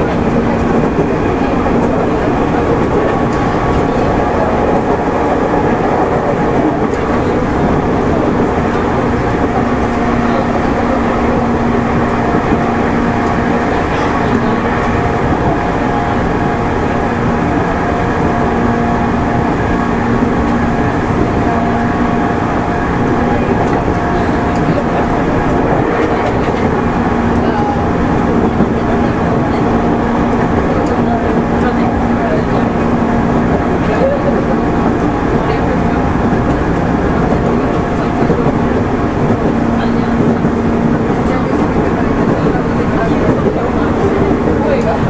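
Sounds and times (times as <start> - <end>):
train wheels rumbling on rail: 0.0 - 45.0.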